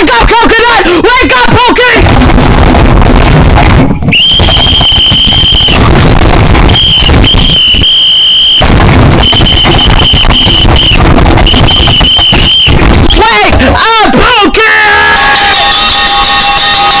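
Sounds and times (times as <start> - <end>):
loud distorted crackling: 0.0 - 17.0
piercing high-pitched tone: 3.5 - 13.7, 15.0 - 17.0.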